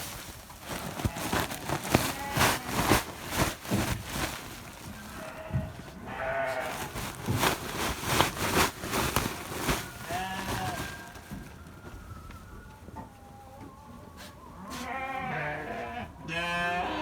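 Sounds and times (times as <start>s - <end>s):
short knocks and rustles: 0.0s - 11.6s
sheep bleating: 5.2s - 6.8s, 14.9s - 17.0s.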